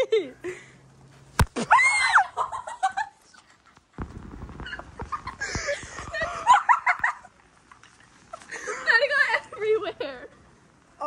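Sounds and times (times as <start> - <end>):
girls squealing and shrieking: 1.6 - 2.6.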